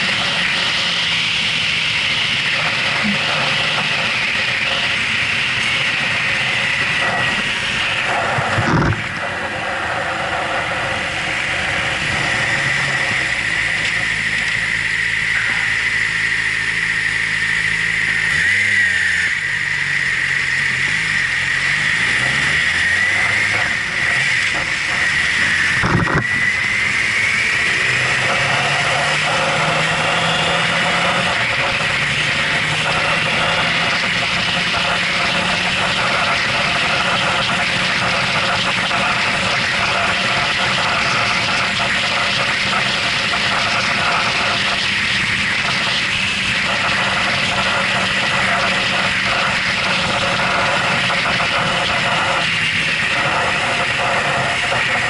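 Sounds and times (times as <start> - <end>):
motorcycle engine running: 0.0 - 55.0
wind rush: 24.6 - 27.1.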